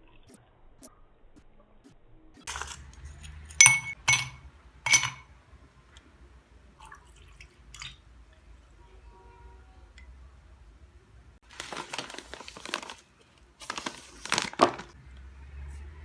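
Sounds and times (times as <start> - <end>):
glassware clinking: 3.6 - 5.3.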